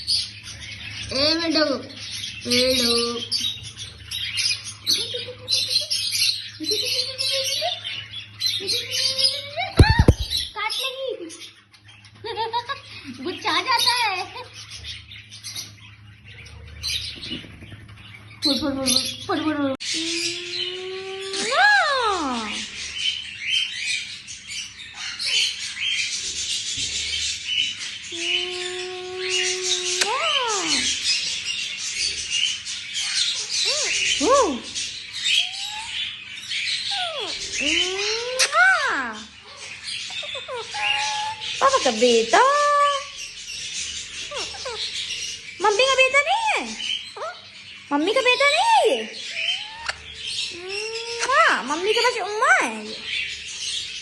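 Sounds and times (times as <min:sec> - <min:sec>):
parrot chirps: 0:32.0 - 0:53.1
parrot chattering: 0:35.2 - 0:43.2, 0:44.0 - 0:53.1.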